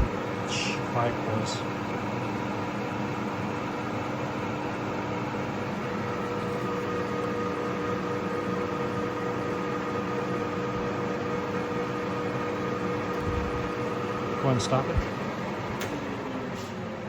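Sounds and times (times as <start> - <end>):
lathe humming: 0.0 - 17.0.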